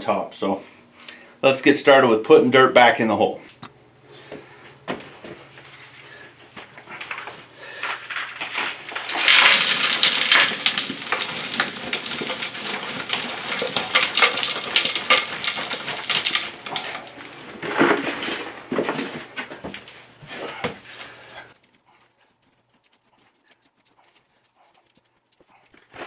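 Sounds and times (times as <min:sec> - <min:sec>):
shovel scraping: 0:05.3 - 0:21.2
soil pouring: 0:05.4 - 0:21.6.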